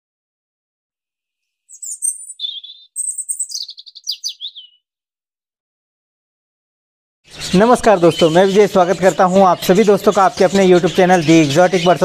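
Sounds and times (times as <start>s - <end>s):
bird chirping and trilling: 1.6s - 4.8s, 7.3s - 12.0s.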